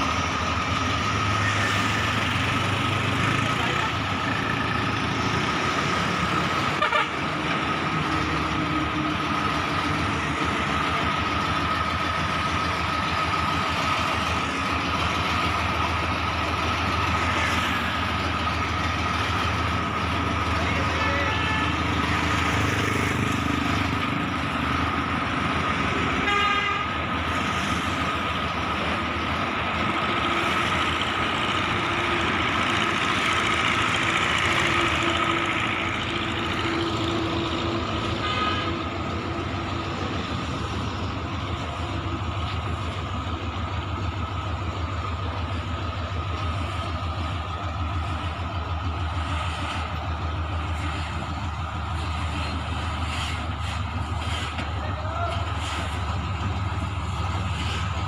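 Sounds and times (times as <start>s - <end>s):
diesel engine running: 0.0s - 58.0s
vehicle horn toot: 6.8s - 7.2s, 26.2s - 26.9s.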